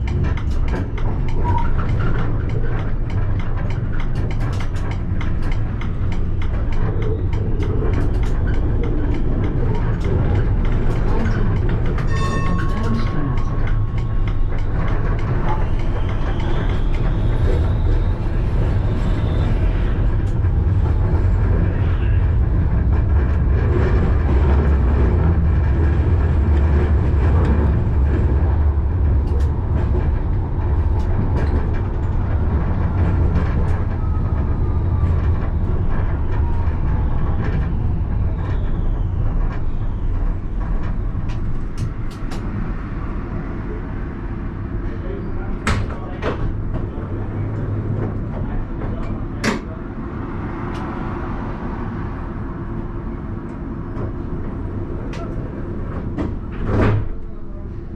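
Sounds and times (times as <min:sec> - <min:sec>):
tram wheels rumbling on rails: 0:00.0 - 0:57.9.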